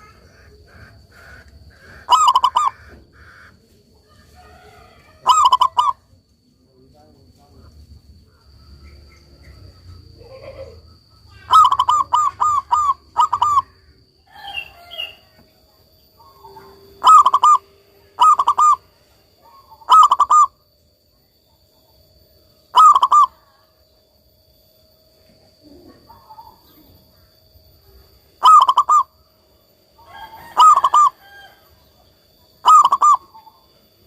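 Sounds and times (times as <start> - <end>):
dove cooing: 0.0 - 3.4, 4.6 - 6.1, 9.6 - 15.4, 16.2 - 20.6, 22.7 - 23.7, 25.6 - 27.0, 28.4 - 29.2, 30.0 - 31.5, 32.6 - 33.6.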